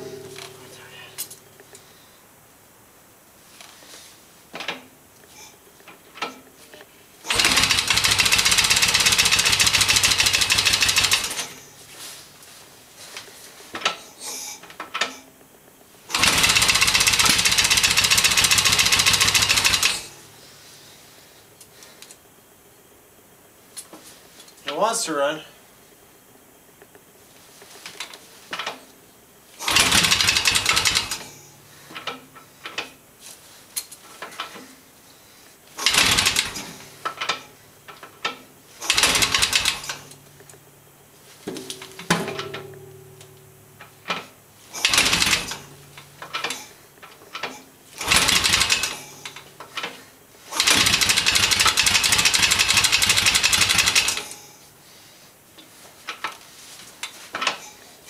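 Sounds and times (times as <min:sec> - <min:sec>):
motorcycle engine sputtering: 0:07.3 - 0:11.5, 0:16.1 - 0:20.1, 0:29.6 - 0:31.3, 0:35.8 - 0:37.3, 0:38.8 - 0:40.2, 0:44.8 - 0:46.6, 0:48.0 - 0:49.5, 0:50.6 - 0:54.2.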